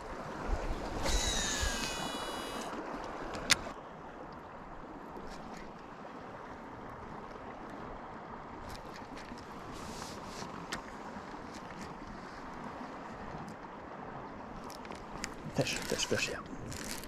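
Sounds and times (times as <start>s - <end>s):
river water running: 0.0s - 17.0s
high-pitched whirring tone: 1.0s - 2.7s.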